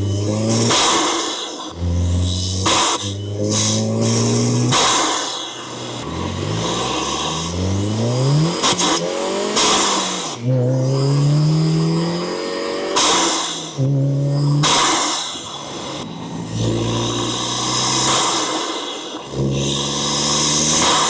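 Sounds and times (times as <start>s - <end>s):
rushing intake hiss: 0.0s - 10.4s, 14.4s - 21.0s
car engine revving: 0.0s - 21.0s.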